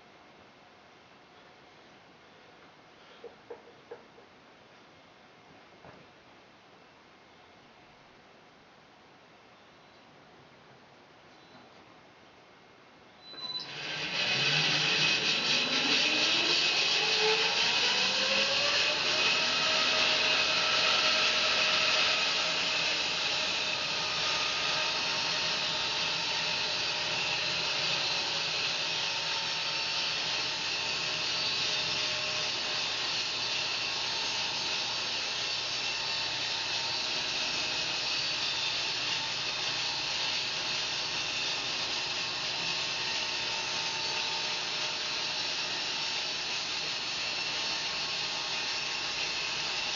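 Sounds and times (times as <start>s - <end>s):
bandsaw whining and cutting: 13.4s - 49.9s.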